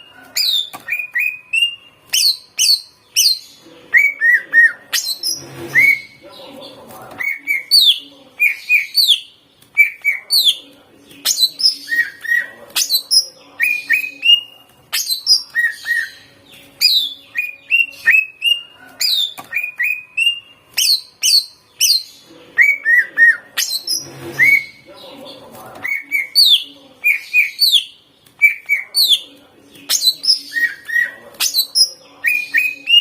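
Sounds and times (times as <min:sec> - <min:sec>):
bird singing whistled chirps: 0:00.0 - 0:06.2, 0:11.3 - 0:24.8.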